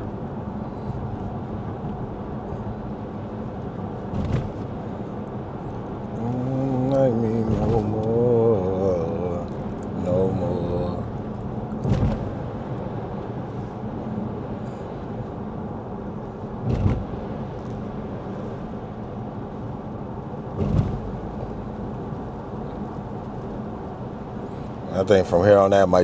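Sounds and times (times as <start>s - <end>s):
tyre noise on wet road: 3.8s - 5.0s, 16.1s - 24.9s
windshield wiper swish: 4.1s - 4.8s, 7.4s - 8.1s, 11.8s - 12.5s, 16.6s - 17.3s, 20.6s - 21.2s.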